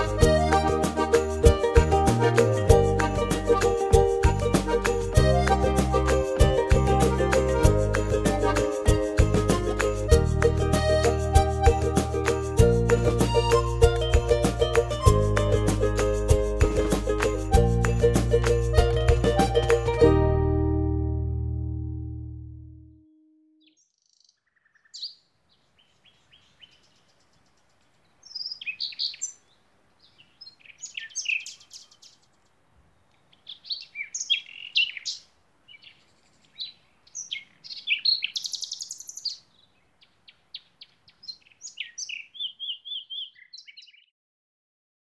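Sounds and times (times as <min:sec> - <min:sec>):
small birds chirping: 0:23.6 - 0:44.1
faint background hiss: 0:25.2 - 0:41.3.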